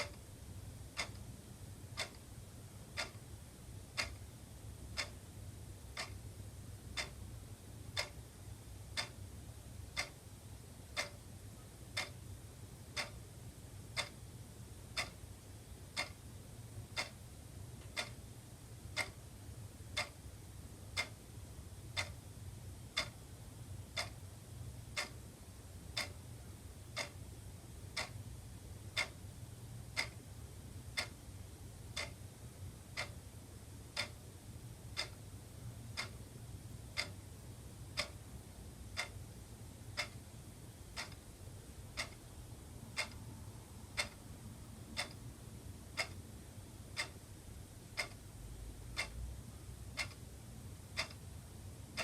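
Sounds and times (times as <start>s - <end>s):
wall clock ticking: 0.0s - 52.0s.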